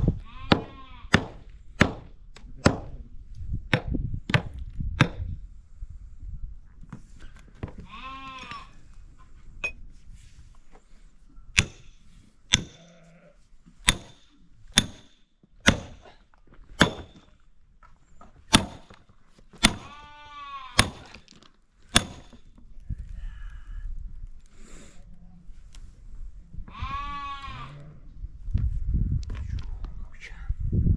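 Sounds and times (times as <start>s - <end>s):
livestock bleating: 0.2s - 1.1s, 7.8s - 8.8s, 12.8s - 13.4s, 19.8s - 20.8s, 26.7s - 28.0s
axe chopping firewood: 0.5s - 3.0s, 3.7s - 5.4s, 11.6s - 12.8s, 13.8s - 16.2s, 16.8s - 17.3s, 18.5s - 19.0s, 19.6s - 20.0s, 20.8s - 22.5s.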